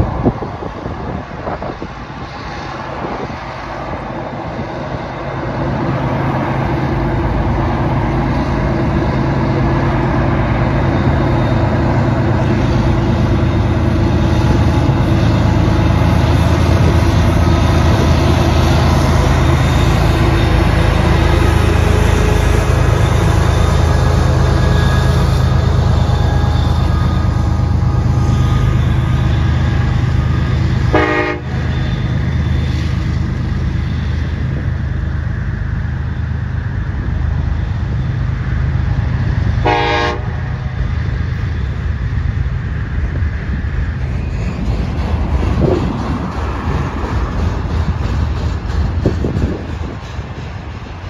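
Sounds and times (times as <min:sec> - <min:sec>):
diesel locomotives rumbling: 0:00.0 - 0:51.0
freight cars rolling past: 0:00.0 - 0:51.0
train horn toots: 0:30.8 - 0:31.8, 0:39.6 - 0:40.6.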